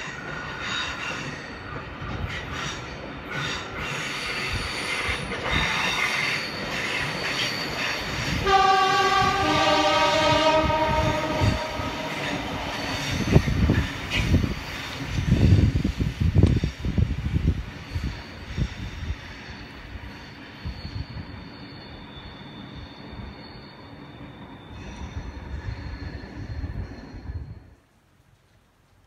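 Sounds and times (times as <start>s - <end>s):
train wheels squealing: 0.0s - 16.0s, 16.6s - 27.8s
train horn two-note blast: 8.4s - 12.9s.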